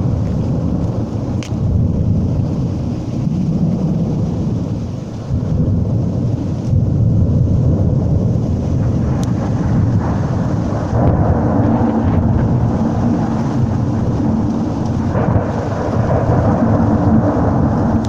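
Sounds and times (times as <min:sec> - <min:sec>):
thunder rumbling: 0:00.0 - 0:18.0.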